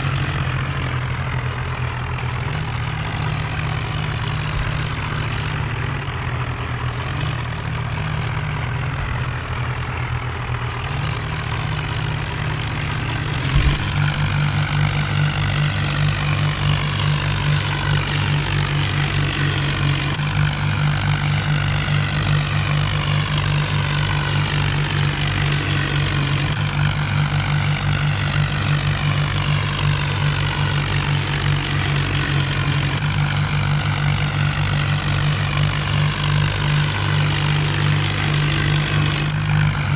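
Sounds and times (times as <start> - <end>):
tractor diesel engine: 0.0 - 39.9
thump: 13.5 - 14.0.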